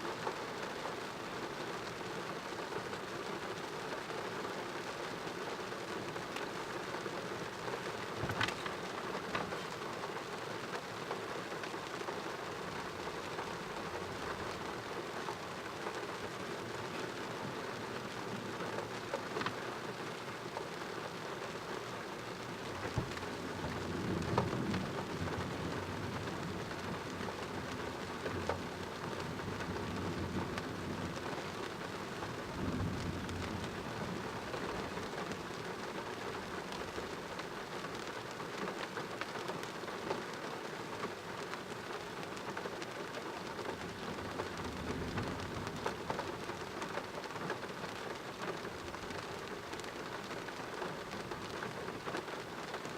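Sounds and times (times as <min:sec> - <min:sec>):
heavy rain falling: 0:00.0 - 0:52.9.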